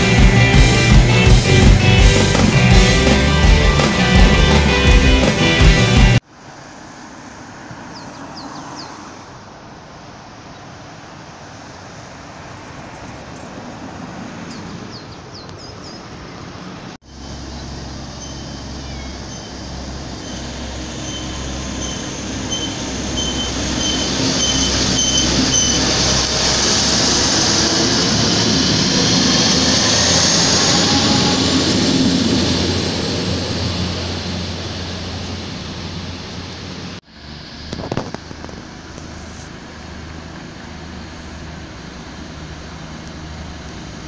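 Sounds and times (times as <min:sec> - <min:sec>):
diesel train passing: 0:00.0 - 0:44.0
high intermittent squeal: 0:17.1 - 0:37.7.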